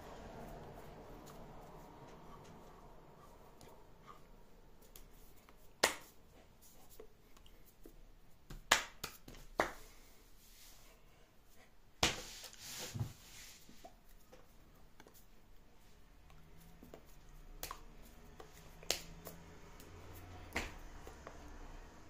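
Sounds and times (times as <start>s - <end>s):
faint low hum: 0.0s - 8.5s.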